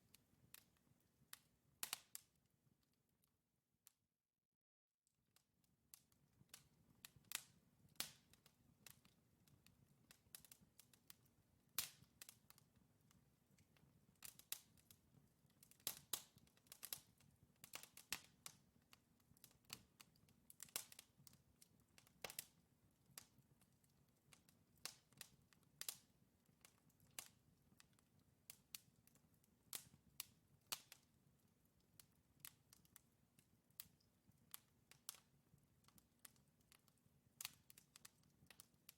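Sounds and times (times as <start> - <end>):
wood fire crackling: 0.0 - 2.4, 5.9 - 38.9
burning logs popping: 6.4 - 31.1.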